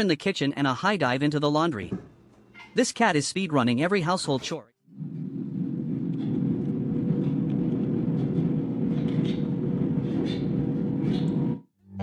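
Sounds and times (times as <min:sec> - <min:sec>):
low mechanical hum: 0:04.9 - 0:12.0.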